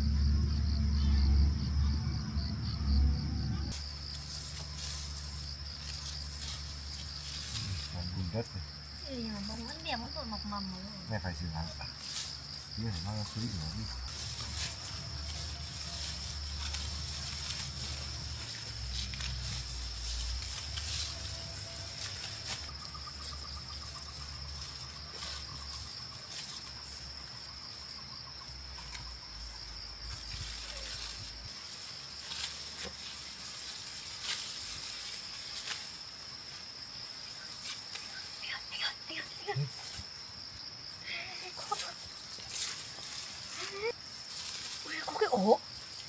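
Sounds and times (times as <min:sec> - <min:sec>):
low rumble: 0:00.0 - 0:05.4
high-pitched insect trill: 0:00.0 - 0:46.0
rice stalks crackling: 0:03.7 - 0:10.0, 0:11.1 - 0:38.5, 0:41.3 - 0:46.0.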